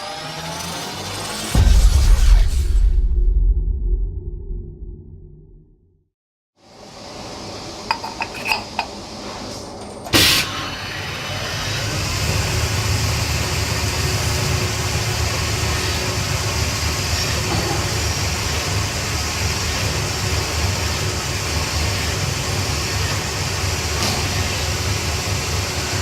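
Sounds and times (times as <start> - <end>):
machine humming and hissing: 6.7 - 26.0.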